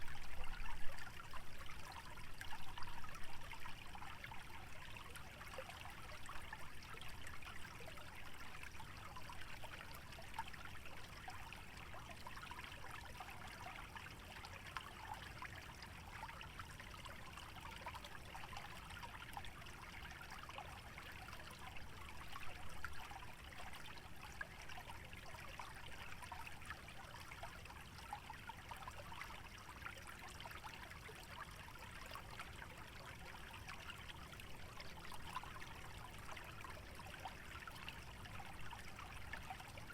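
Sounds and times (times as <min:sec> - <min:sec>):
small stream babbling: 0:00.0 - 0:39.9.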